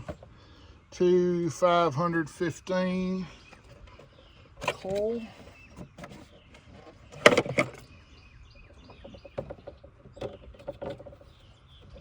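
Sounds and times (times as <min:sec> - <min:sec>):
handling clicks and knocks: 0:03.5 - 0:07.9, 0:08.8 - 0:12.0.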